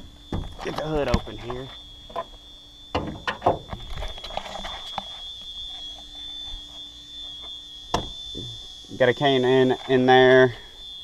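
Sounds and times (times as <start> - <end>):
hood release clicks and clunks: 2.9 - 5.0.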